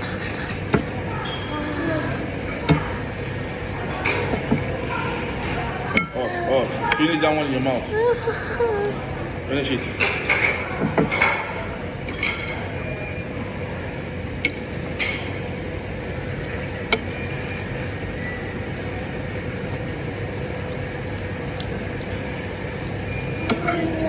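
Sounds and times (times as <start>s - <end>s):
spoon clinking against dish: 1.2s - 1.6s.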